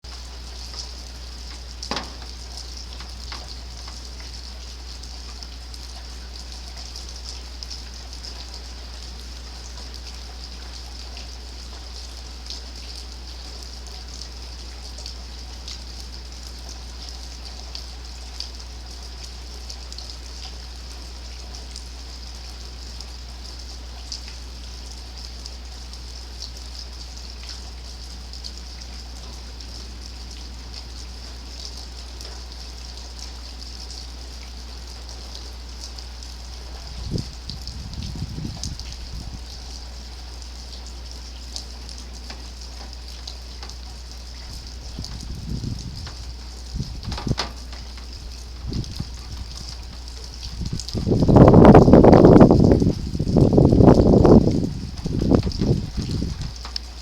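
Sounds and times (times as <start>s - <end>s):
steady rain: 0.0s - 57.0s
sharp tap: 1.9s - 2.4s.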